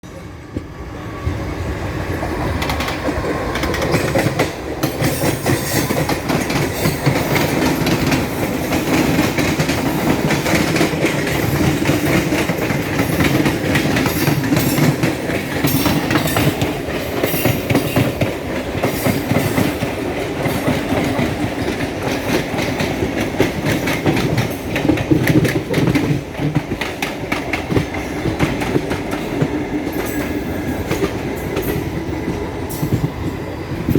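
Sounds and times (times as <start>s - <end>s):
train wheels clattering over rail joints: 2.5s - 33.9s.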